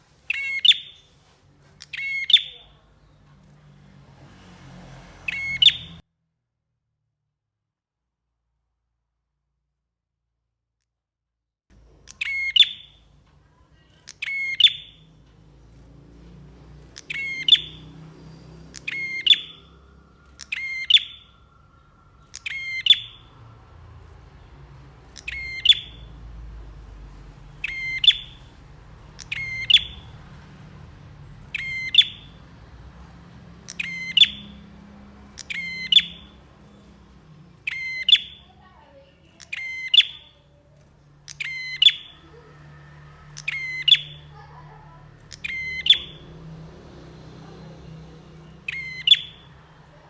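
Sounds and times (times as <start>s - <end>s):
bird calling with clicky rattles: 0.3s - 3.7s, 11.8s - 46.3s, 48.4s - 50.0s.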